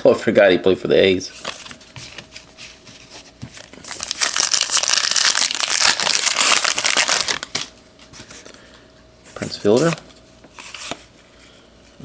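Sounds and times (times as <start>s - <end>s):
foil wrapper crinkling: 3.6s - 7.7s.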